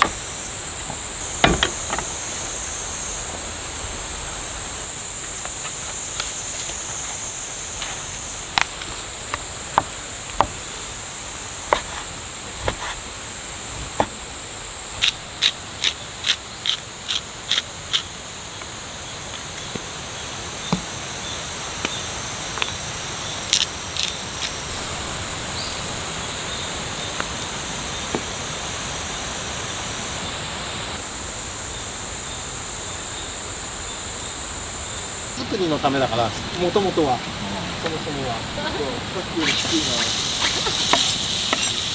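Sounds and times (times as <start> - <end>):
insects chirring: 0.0 - 41.9.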